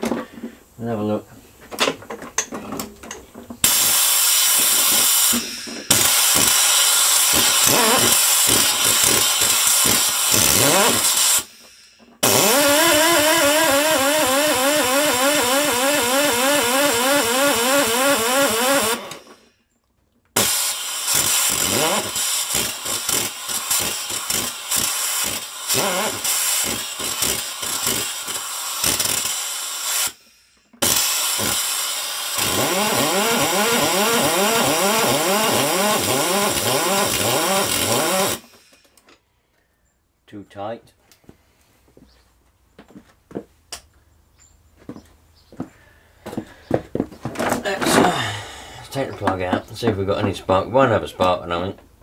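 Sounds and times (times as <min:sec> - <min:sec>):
lawnmower engine cranking: 0:01.8 - 0:19.4, 0:20.3 - 0:30.2, 0:30.8 - 0:39.2, 0:47.2 - 0:49.6
electric drill whining: 0:03.6 - 0:19.5, 0:20.4 - 0:39.0.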